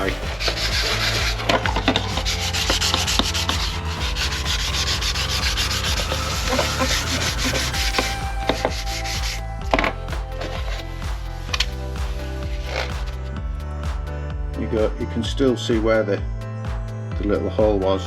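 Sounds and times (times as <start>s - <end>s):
hand sanding with rasping hiss: 0.0s - 9.4s.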